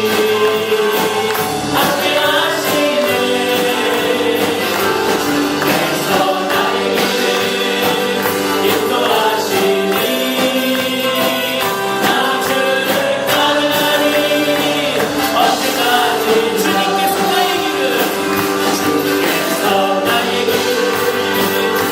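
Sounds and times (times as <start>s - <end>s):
group singing a hymn-like song: 0.0s - 21.9s
instrumental accompaniment: 0.0s - 21.9s
steady percussion: 0.0s - 21.9s.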